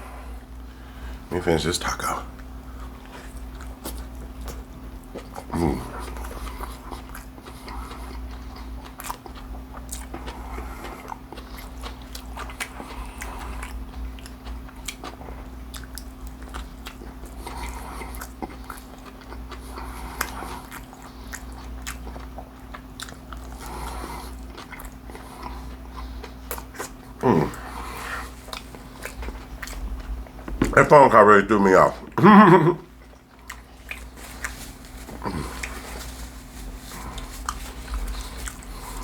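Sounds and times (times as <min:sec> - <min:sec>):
person chewing crispy food: 0:02.0 - 0:39.0.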